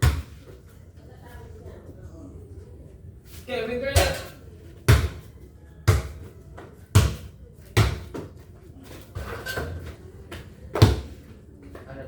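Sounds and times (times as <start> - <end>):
basketball bouncing on hard court: 0.0 - 0.4, 4.9 - 5.3, 6.9 - 8.3, 10.8 - 11.1.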